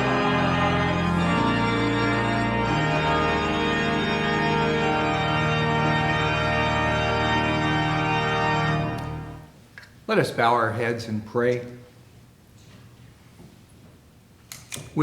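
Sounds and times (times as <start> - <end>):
church organ chords: 0.0 - 9.6.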